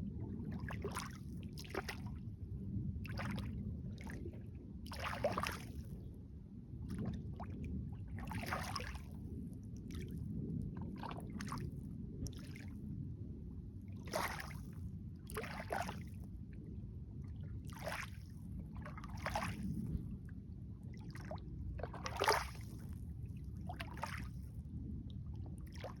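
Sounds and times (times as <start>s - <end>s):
steady low rumble: 0.0s - 26.0s
lake water lapping and splashing: 0.1s - 2.4s, 3.0s - 6.1s, 6.8s - 12.8s, 13.8s - 16.3s, 17.2s - 19.9s, 20.9s - 24.6s, 25.6s - 26.0s.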